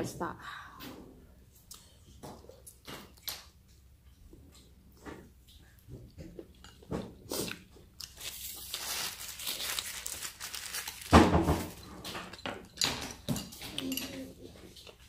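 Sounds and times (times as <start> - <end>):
person chewing: 1.6 - 4.8, 6.5 - 10.2
paper napkin crinkling: 8.1 - 11.8.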